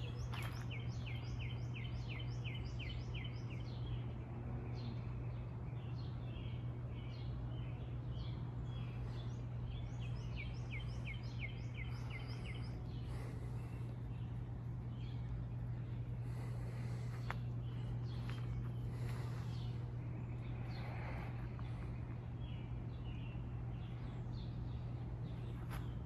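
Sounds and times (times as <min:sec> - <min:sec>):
low background rumble: 0:00.0 - 0:26.0
songbird singing down-slurred notes: 0:00.0 - 0:26.0.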